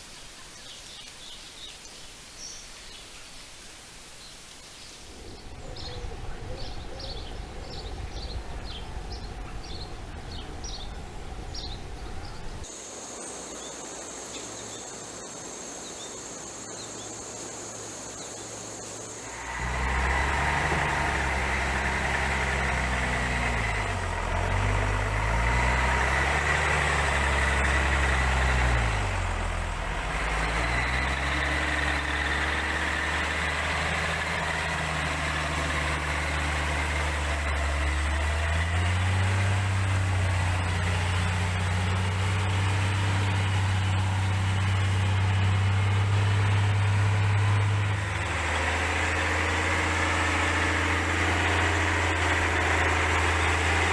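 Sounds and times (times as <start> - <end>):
low rumble: 5.1 - 12.7
vehicle engine running: 5.1 - 13.5, 14.1 - 53.9.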